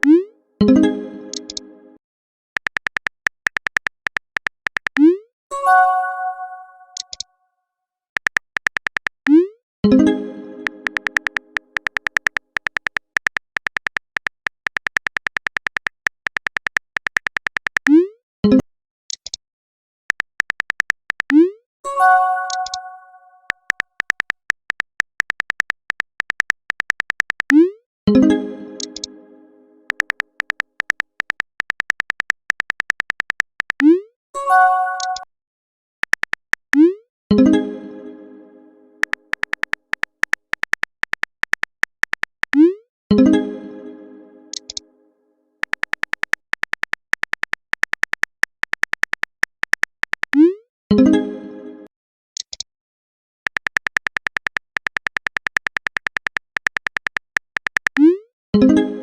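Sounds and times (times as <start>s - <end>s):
phone keyboard typing clicks: 1.3s - 1.6s, 2.6s - 5.1s, 6.9s - 7.3s, 8.2s - 9.4s, 10.6s - 18.0s, 20.1s - 21.4s, 22.3s - 27.6s, 28.8s - 29.1s, 29.9s - 33.9s, 35.0s - 35.3s, 36.0s - 36.9s, 39.0s - 42.7s, 44.5s - 44.8s, 45.6s - 50.4s, 53.5s - 58.1s
message chime: 5.5s - 7.0s, 21.9s - 23.4s, 34.4s - 35.3s.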